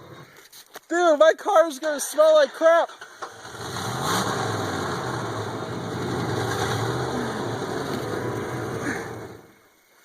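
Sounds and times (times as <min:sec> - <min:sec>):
car engine idling: 0:02.9 - 0:09.7.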